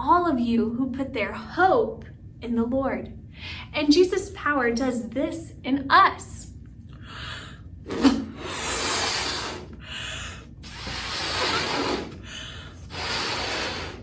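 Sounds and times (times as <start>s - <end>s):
air rushing into balloon: 7.9s - 9.8s, 10.6s - 14.0s.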